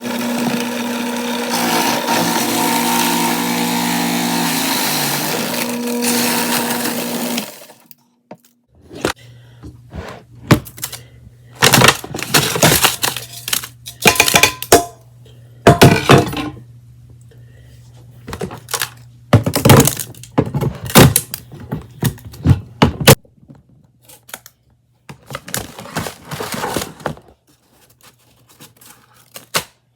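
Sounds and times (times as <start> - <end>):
electric motor grinding ice: 0.0 - 8.0
ice crunching and clattering: 11.6 - 14.8, 18.4 - 21.4, 25.1 - 29.6.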